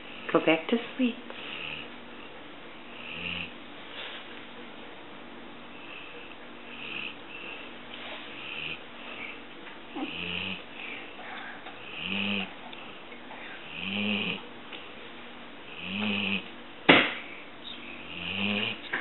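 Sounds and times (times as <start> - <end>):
dog snoring: 1.4 - 1.9, 2.9 - 3.6, 5.7 - 10.9, 11.8 - 13.0, 13.6 - 14.5, 15.6 - 16.5, 18.0 - 19.0.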